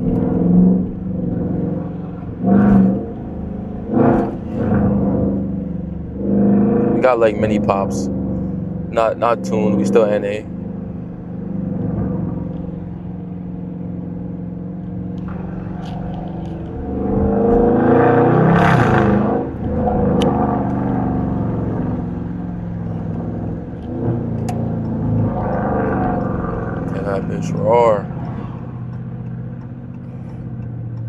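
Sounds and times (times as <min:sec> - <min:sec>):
car engine revving: 0:00.0 - 0:31.0
exhaust pops: 0:00.0 - 0:31.0.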